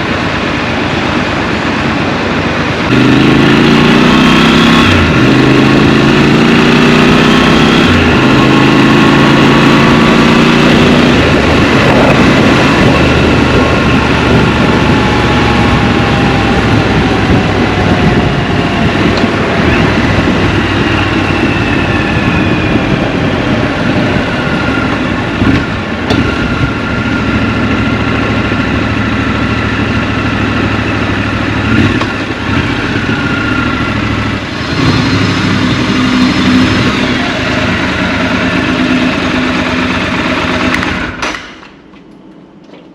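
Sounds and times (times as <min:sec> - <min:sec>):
motorcycle engine accelerating: 0:00.0 - 0:42.1
wind and road noise: 0:00.0 - 0:42.9.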